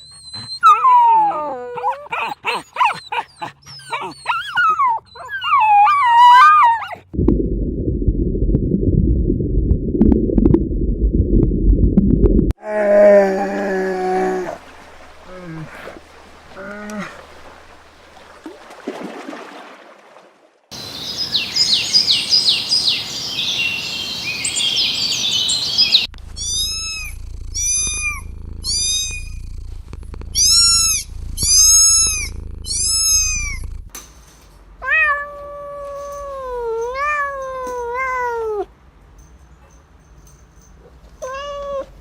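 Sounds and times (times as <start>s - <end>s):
rapid high chirping: 25.9s - 33.9s
cats meowing: 26.1s - 33.9s, 34.8s - 38.7s, 41.2s - 42.0s.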